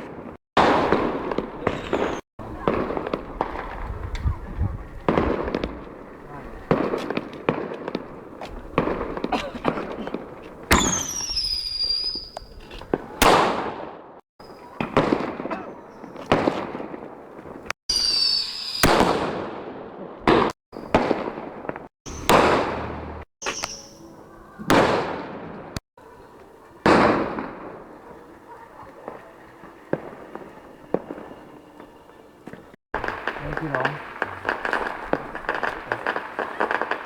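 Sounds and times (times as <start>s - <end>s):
fireworks bangs with echo: 0.0s - 25.8s, 26.8s - 32.1s, 33.0s - 37.0s
fireworks falling whistles: 0.6s - 5.6s, 10.7s - 13.2s, 17.9s - 19.2s, 20.7s - 24.3s, 29.0s - 37.0s.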